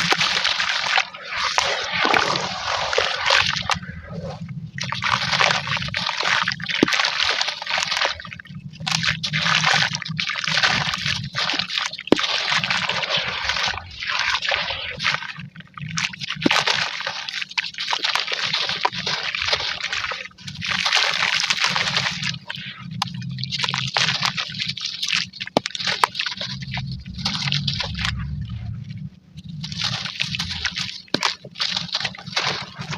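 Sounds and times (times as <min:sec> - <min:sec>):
chunks crumbling into water: 0:00.0 - 0:03.8, 0:17.9 - 0:28.6, 0:29.5 - 0:32.9.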